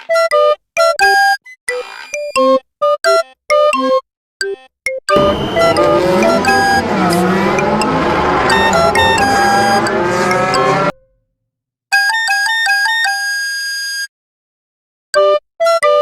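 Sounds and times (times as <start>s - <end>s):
short bright electronic notes: 5.2s - 10.9s
noisy sliding pitch sound effect: 5.2s - 11.0s
music: 5.2s - 11.1s.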